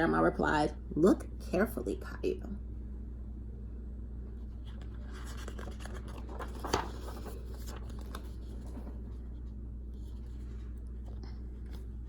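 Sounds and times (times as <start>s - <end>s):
steady low hum: 0.0s - 12.0s
book page turning: 4.4s - 12.0s.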